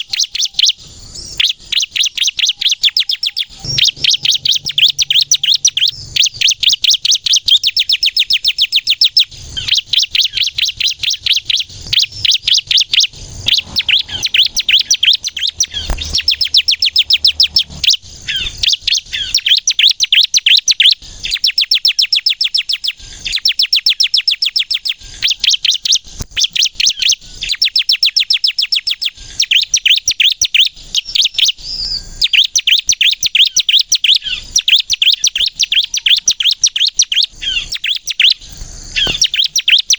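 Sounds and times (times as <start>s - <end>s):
bird singing rattling bursts: 0.0s - 39.9s.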